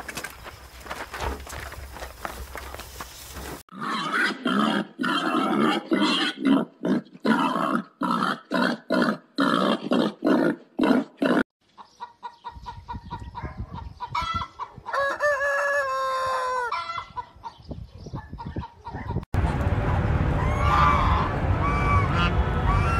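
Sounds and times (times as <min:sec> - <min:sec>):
pigs grunting: 0:03.7 - 0:11.4
chickens clucking: 0:11.6 - 0:19.2
rooster crowing: 0:14.9 - 0:17.0
low rumble: 0:19.4 - 0:22.9
geese calling: 0:20.4 - 0:22.9.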